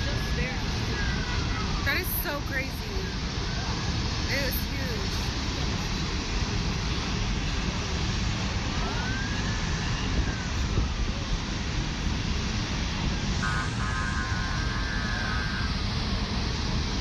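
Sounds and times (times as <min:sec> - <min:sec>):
roar of burning gas: 0:06.4 - 0:17.0
faint siren: 0:08.7 - 0:11.8, 0:13.1 - 0:16.7
horn-like tone: 0:13.4 - 0:14.6.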